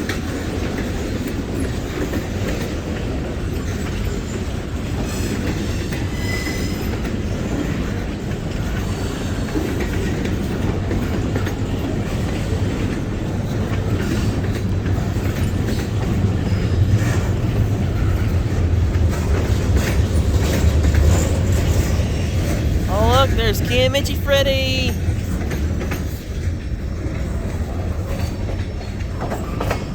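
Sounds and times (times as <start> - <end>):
freight train wheels rumbling: 6.8 - 22.9.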